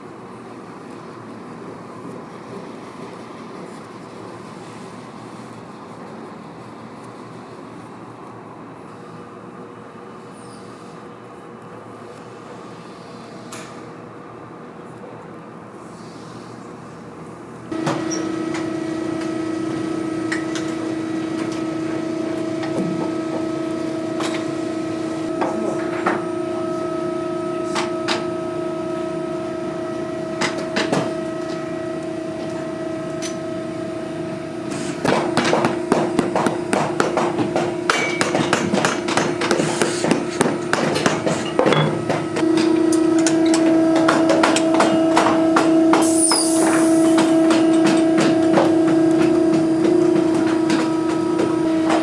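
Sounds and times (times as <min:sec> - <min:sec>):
machine motor humming: 0:17.7 - 0:52.0.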